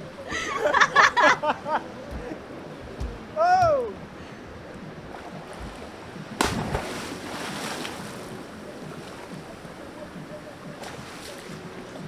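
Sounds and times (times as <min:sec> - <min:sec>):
surf: 0:00.0 - 0:12.0
wind: 0:00.0 - 0:12.0
sea water splash: 0:05.0 - 0:12.0.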